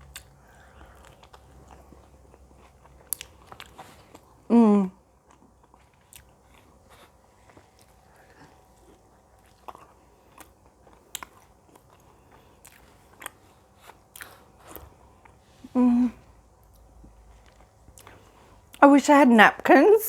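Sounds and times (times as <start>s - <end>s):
wet chewing mouth clicks: 0.0s - 4.4s, 5.2s - 15.4s.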